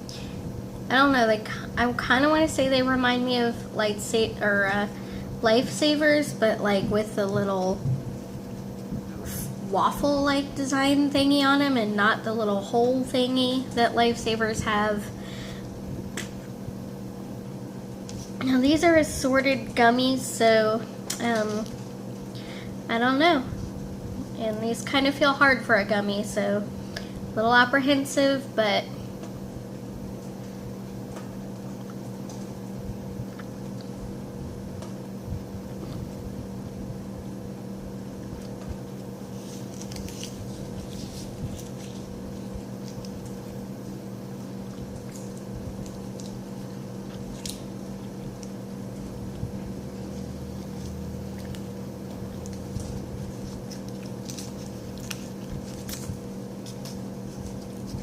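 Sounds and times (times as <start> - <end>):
steady low hum: 0.0 - 58.0
person chewing: 50.0 - 58.0.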